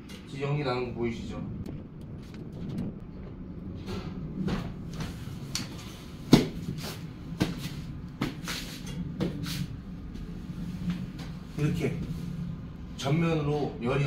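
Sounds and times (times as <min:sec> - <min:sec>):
low steady hum: 0:00.0 - 0:14.0
sharp clicks and knocks: 0:01.6 - 0:05.7.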